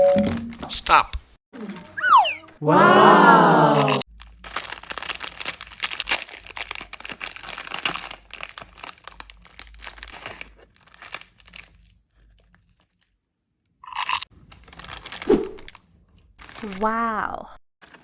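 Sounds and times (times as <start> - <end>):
snack wrapper crinkling: 4.1 - 13.2, 13.9 - 17.0.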